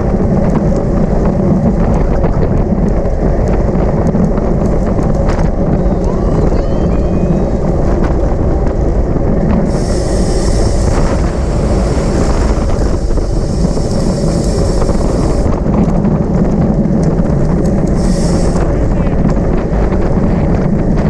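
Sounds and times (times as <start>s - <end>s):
wind noise on microphone: 0.0s - 21.0s
high hiss: 9.6s - 15.5s, 17.9s - 18.8s.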